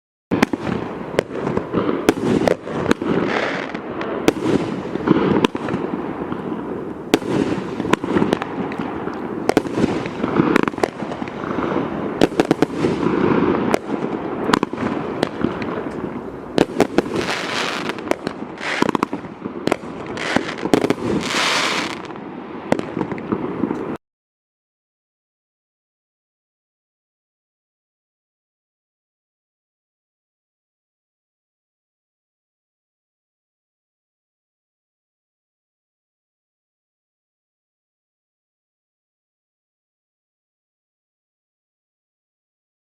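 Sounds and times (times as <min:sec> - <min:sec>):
fireworks bangs: 0:00.3 - 0:24.0
rush of overlapping firework bursts: 0:00.3 - 0:24.0.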